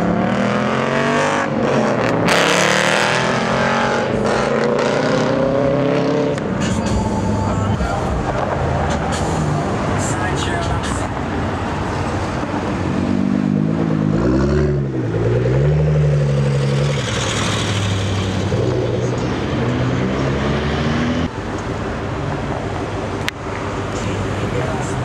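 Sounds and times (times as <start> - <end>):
car engines accelerating past: 12.0 - 21.3.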